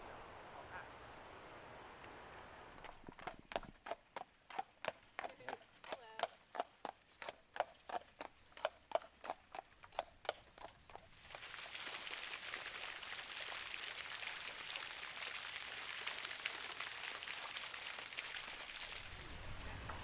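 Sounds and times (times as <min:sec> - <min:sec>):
clip-clop of hard steps: 0:02.8 - 0:11.8.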